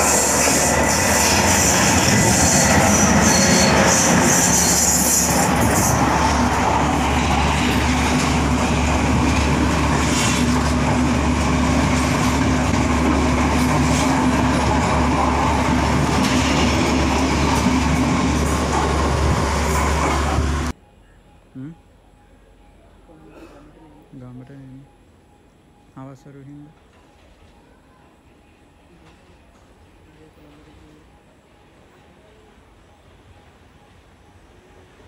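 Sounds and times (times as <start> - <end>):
high wheel squeal: 0.0 - 6.4
train wheels rumbling on rails: 0.0 - 20.8.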